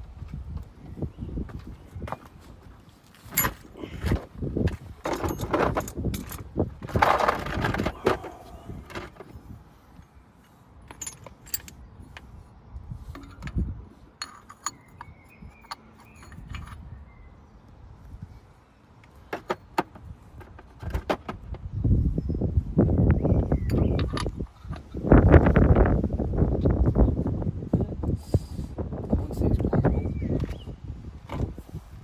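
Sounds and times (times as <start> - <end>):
metal tools clinking: 3.3 - 3.7, 5.0 - 7.6, 10.9 - 11.8, 13.1 - 16.9, 23.6 - 25.0.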